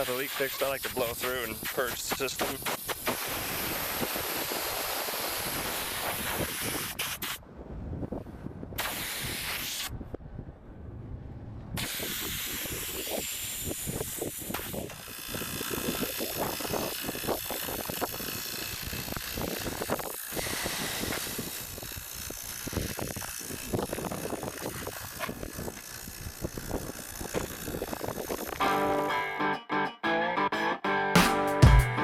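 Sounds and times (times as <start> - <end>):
hiss of gas through lines: 0.0 - 7.4, 8.8 - 9.9, 11.8 - 28.6.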